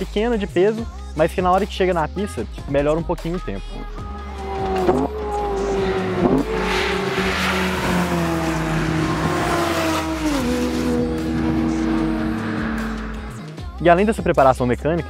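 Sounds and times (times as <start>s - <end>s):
car engine on race track: 3.7s - 14.5s.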